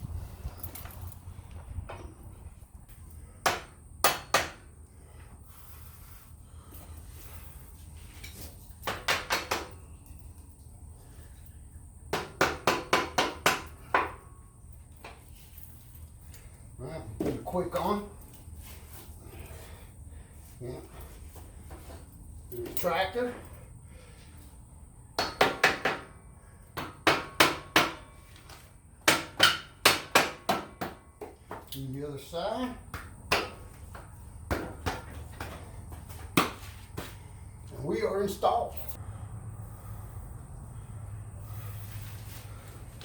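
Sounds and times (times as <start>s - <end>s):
hammer striking steel: 3.4s - 4.6s.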